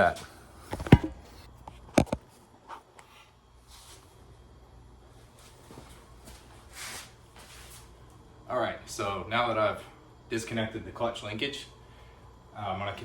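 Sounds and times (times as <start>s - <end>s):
quiet handling noise: 0.0s - 3.1s.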